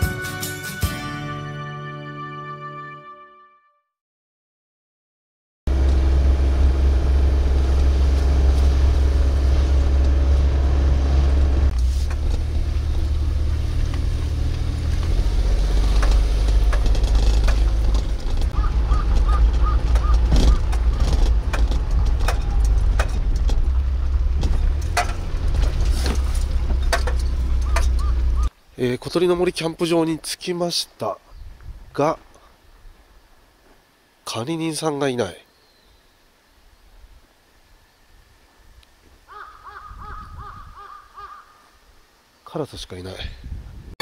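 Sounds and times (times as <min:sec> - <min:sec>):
car engine and road rumble: 0:05.7 - 0:28.6
clicks and rattles: 0:15.8 - 0:28.2.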